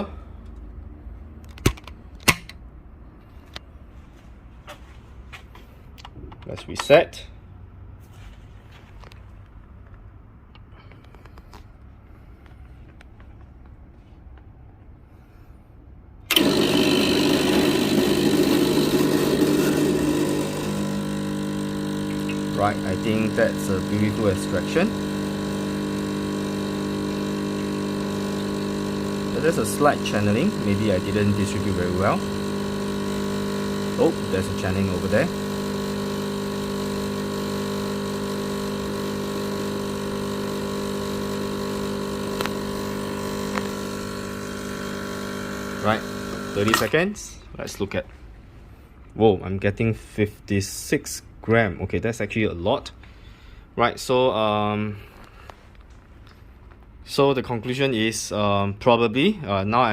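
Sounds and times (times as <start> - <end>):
espresso machine pump humming: 16.3 - 47.0.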